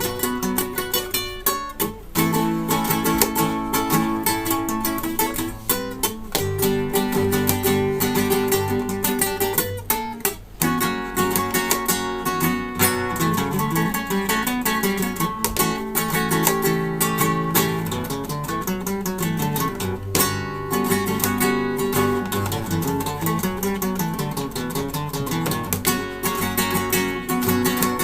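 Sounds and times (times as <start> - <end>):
flamenco acoustic guitar: 0.0 - 28.0.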